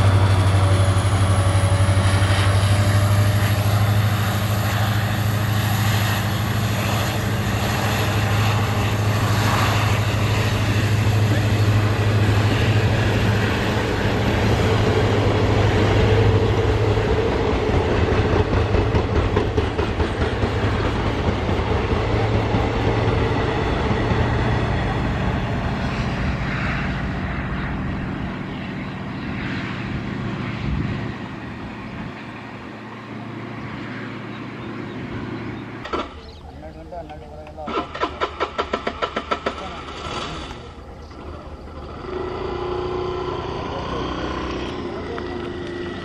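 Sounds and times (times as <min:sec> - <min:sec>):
train wheels clattering on rails: 0:11.7 - 0:25.5, 0:37.0 - 0:40.6.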